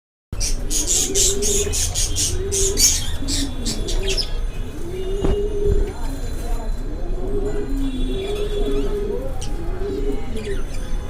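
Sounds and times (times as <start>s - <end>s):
budgerigars chirping: 0.4s - 4.4s
low cooing call: 0.4s - 6.3s, 6.9s - 10.6s.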